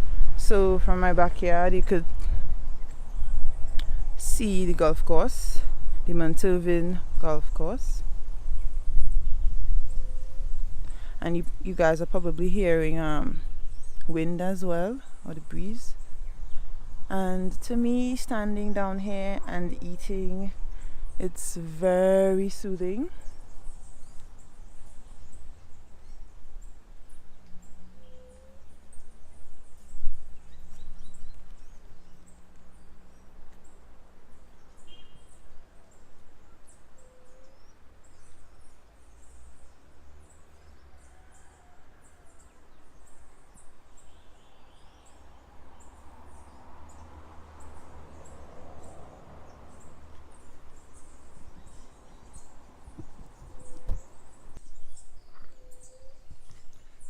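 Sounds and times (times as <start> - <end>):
wind blowing over microphone: 0.0 - 27.9, 28.6 - 32.2, 48.2 - 57.0
insects and birds chirping: 8.0 - 57.0.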